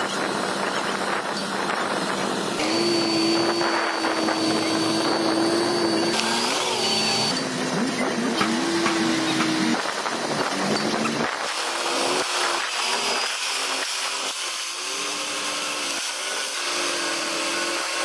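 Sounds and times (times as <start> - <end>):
bulldozer engines whining: 2.6 - 11.3.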